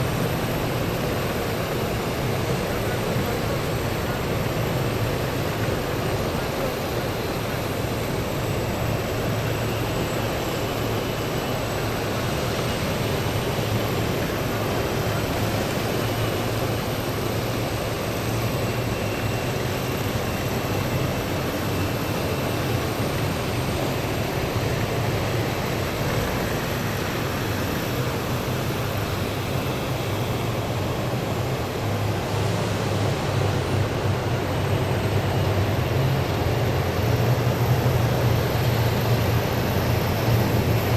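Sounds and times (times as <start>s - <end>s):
low engine drone: 23.0s - 40.9s.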